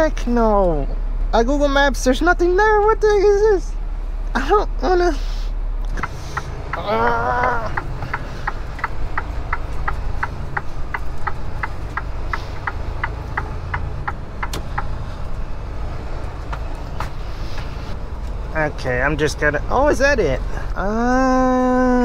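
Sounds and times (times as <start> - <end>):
truck engine rumble: 0.0 - 22.0
turn signal ticking: 5.8 - 22.0
person humming: 6.8 - 8.3.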